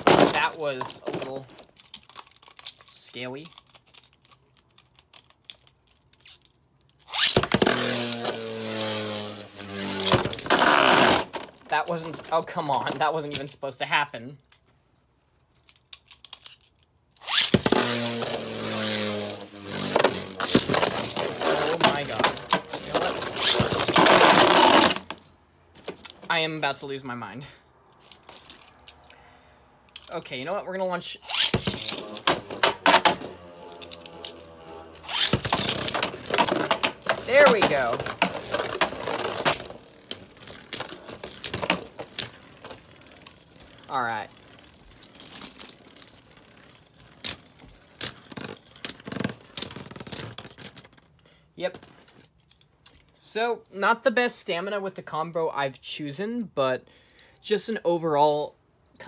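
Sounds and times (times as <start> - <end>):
spinning tops whirring: 7.0 - 11.3, 17.2 - 25.1, 31.3 - 45.5
spinning top launcher rip: 7.0 - 11.4, 17.2 - 25.1, 31.2 - 43.0
ripcord launcher pull: 31.2 - 42.7.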